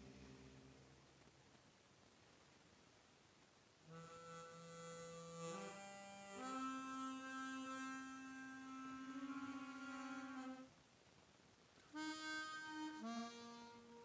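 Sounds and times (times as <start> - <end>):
harmonica notes with effects: 3.9 - 10.7, 11.9 - 14.0.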